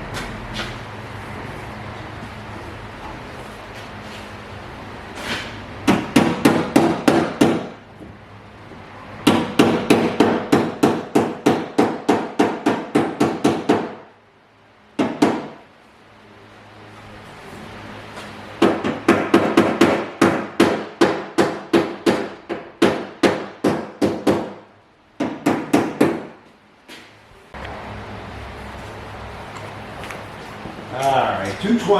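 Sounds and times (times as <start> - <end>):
hammer tapping on sheet metal: 5.8 - 7.8, 9.2 - 14.0, 15.0 - 15.6, 18.6 - 24.6.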